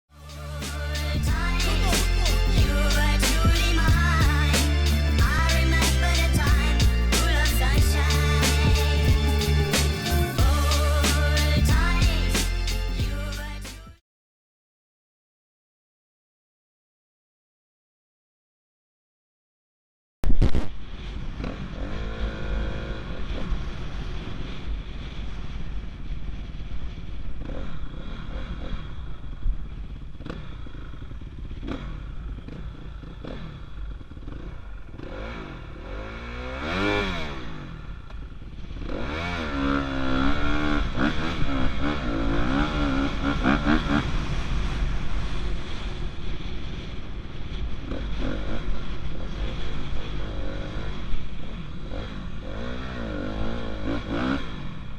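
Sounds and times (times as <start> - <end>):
dirt bike engine revving: 0.1 - 14.0, 30.2 - 54.9.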